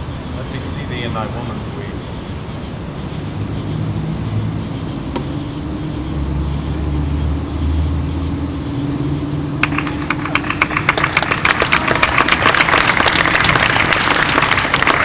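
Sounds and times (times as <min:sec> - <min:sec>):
audience applauding: 0:09.6 - 0:15.0.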